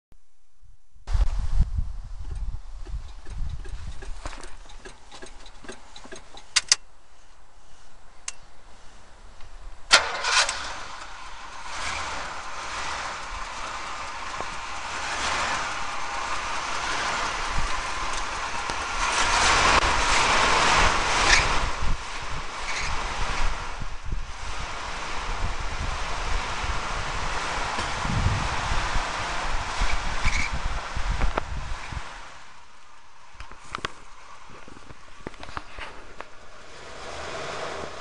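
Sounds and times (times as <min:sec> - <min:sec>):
car engine starting and revving: 0:09.8 - 0:32.7, 0:34.2 - 0:38.0.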